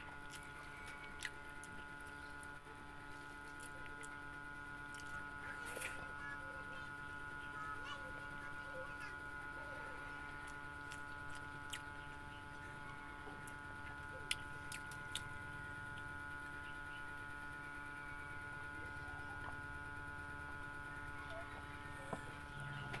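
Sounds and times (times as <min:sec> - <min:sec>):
electrical hum: 0:00.0 - 0:23.0
person chewing: 0:00.2 - 0:02.4, 0:03.2 - 0:04.2, 0:04.9 - 0:05.9, 0:10.3 - 0:12.0, 0:14.2 - 0:15.3.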